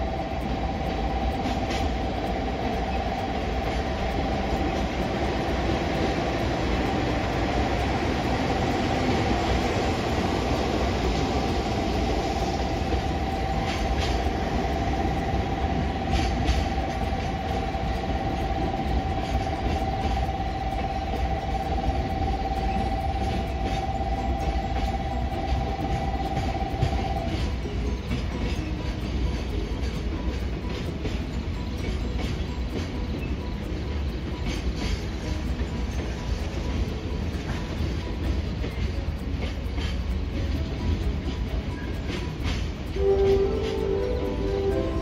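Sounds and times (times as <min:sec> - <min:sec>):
constant whine: 0:00.0 - 0:45.0
electric train rumbling: 0:00.0 - 0:45.0.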